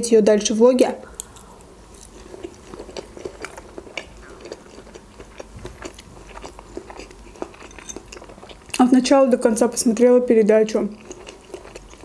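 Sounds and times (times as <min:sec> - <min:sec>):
wet chewing mouth sounds: 0:01.0 - 0:08.9, 0:10.9 - 0:12.0.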